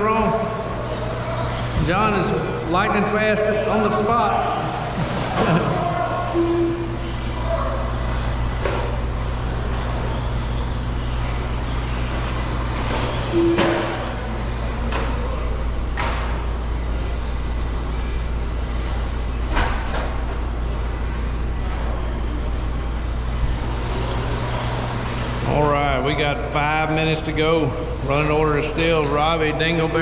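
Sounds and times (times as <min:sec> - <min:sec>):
radio-controlled trucks racing: 0:00.0 - 0:30.0
steady low hum: 0:00.0 - 0:30.0.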